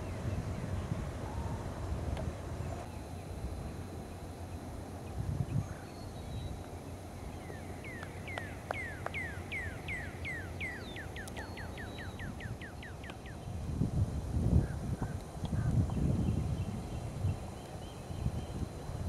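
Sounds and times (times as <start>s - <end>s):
low rumbling background noise: 0.0s - 19.0s
bird whistling: 7.4s - 13.4s.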